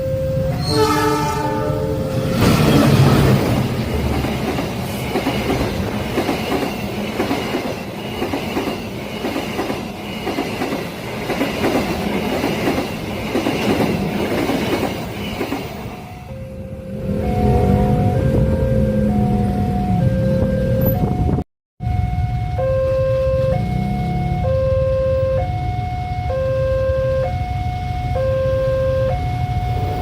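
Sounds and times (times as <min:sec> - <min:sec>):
train wheels clattering over rails: 0:02.3 - 0:15.9.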